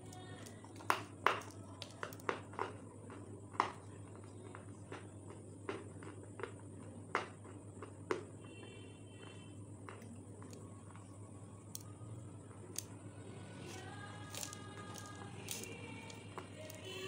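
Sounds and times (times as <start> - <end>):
steady low hum: 0.0 - 17.0
chewing crispy chicken: 1.6 - 8.1.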